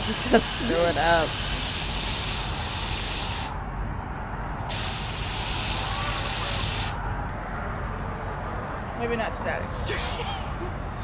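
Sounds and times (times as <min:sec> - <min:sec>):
water spraying from a hose: 0:00.0 - 0:03.6, 0:04.6 - 0:07.1.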